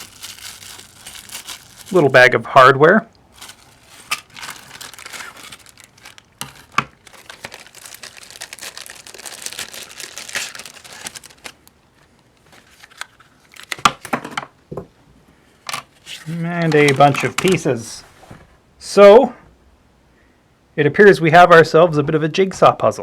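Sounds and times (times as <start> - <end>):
plastic bags crinkling: 0.0 - 2.4, 3.2 - 14.2, 15.9 - 17.7.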